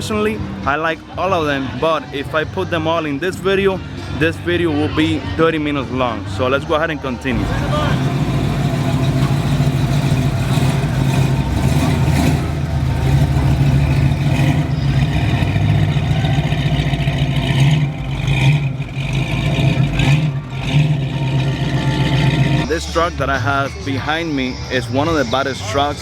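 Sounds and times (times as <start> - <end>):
car engine idling: 7.3 - 23.1.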